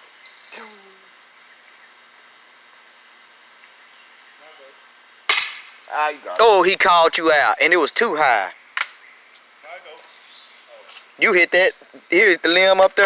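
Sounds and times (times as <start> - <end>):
bb gun shot: 5.3 - 5.8.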